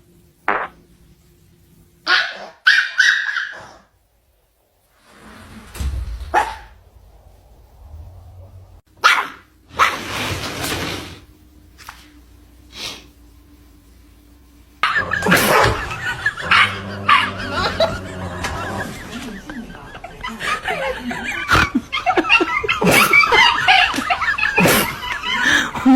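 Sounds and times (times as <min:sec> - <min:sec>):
dog barking: 0:02.1 - 0:03.9, 0:09.0 - 0:10.1, 0:14.8 - 0:18.8.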